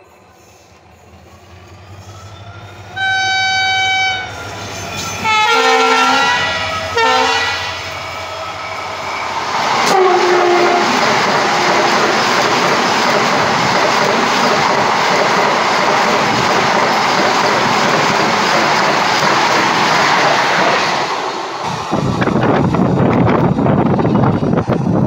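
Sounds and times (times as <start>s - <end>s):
train rushing past: 0.0s - 25.0s
train horn blasts: 3.0s - 4.4s, 5.0s - 7.9s, 9.8s - 11.0s.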